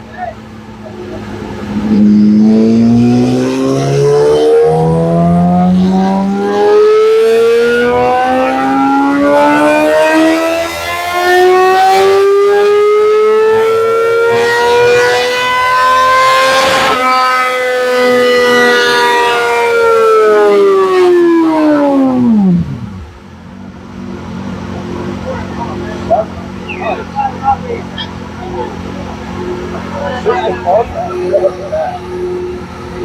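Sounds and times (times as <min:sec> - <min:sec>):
motorcycle engine revving: 0:00.0 - 0:33.0
sharp exhaust crack: 0:00.8 - 0:06.6.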